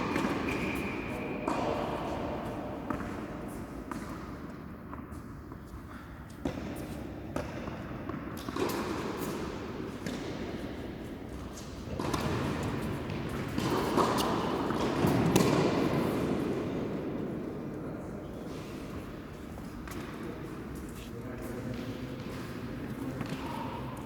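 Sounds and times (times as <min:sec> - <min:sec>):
tennis balls struck and bouncing: 0:00.0 - 0:05.6, 0:06.4 - 0:10.6, 0:11.9 - 0:17.0
background noise: 0:00.0 - 0:24.0.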